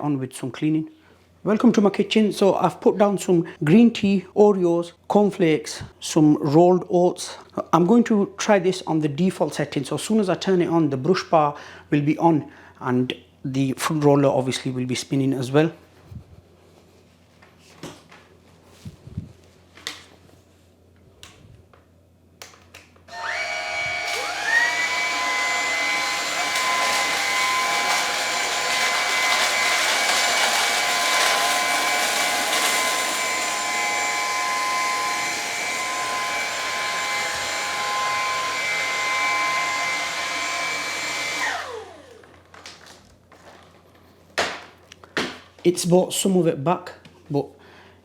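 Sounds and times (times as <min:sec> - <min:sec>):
vacuum cleaner motor whine: 0:23.1 - 0:42.5.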